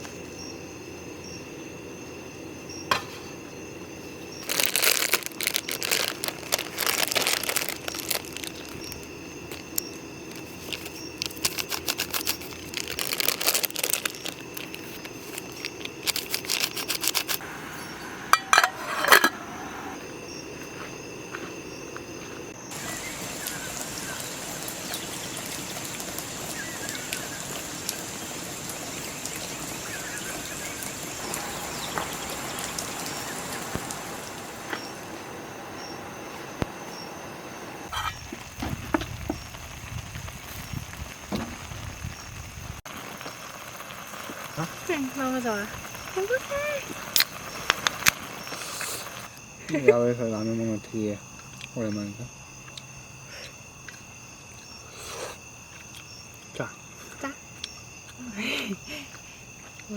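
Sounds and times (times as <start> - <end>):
crinkling and rustling of handling: 4.4 - 17.4
steady hiss: 7.7 - 20.6, 22.5 - 49.4
faint chirps: 22.7 - 37.2.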